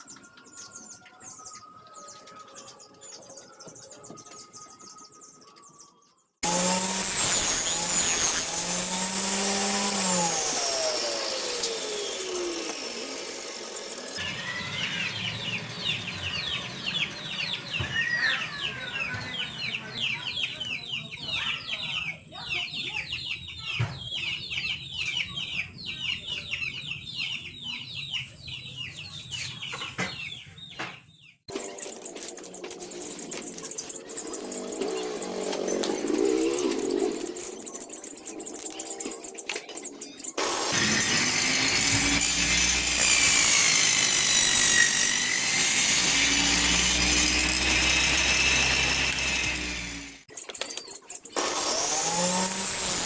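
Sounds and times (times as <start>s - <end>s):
table saw cutting wood: 6.4s - 18.4s, 31.5s - 39.0s, 40.3s - 50.3s, 51.4s - 53.0s
chickens calling: 6.4s - 53.0s.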